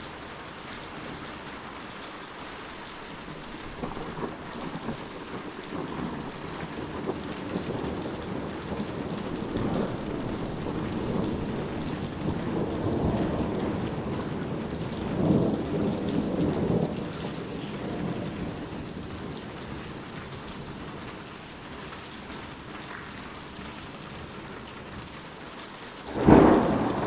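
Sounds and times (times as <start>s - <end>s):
steady rain: 0.0s - 27.0s
rolling thunder: 3.3s - 21.2s, 26.1s - 27.0s.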